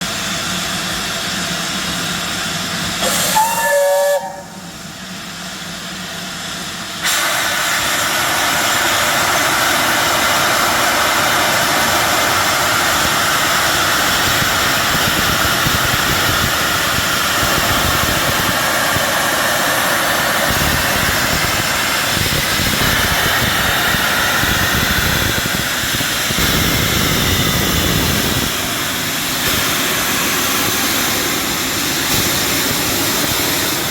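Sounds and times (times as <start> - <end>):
steam hissing: 0.0 - 33.9
steam locomotive whistle: 3.0 - 4.8.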